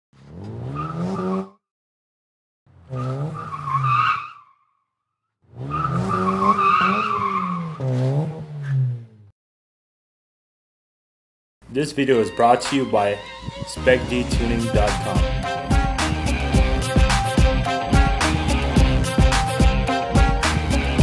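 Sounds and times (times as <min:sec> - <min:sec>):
car engine revving: 0:00.2 - 0:01.5, 0:02.7 - 0:04.0, 0:05.5 - 0:09.3, 0:13.2 - 0:21.0
tires squealing: 0:00.2 - 0:01.5, 0:02.7 - 0:04.6, 0:05.5 - 0:09.0, 0:12.4 - 0:21.0.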